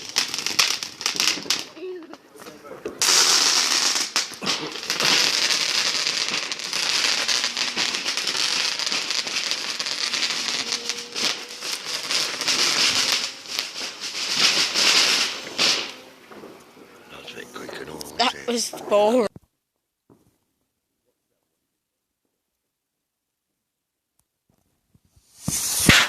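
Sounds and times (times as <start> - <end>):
firework crackling: 0.0 - 19.3, 25.1 - 26.0.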